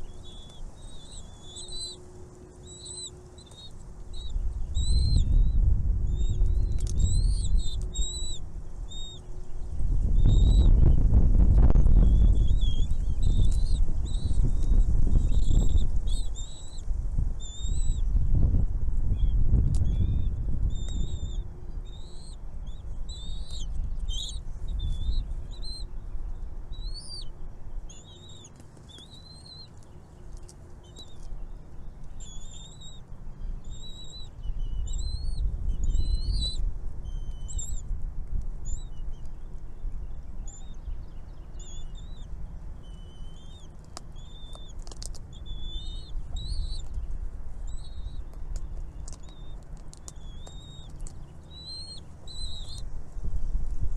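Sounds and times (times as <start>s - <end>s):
baby birds chirping: 0.0s - 18.5s, 19.2s - 37.9s, 38.7s - 53.8s
low microphone rumble: 3.8s - 27.9s.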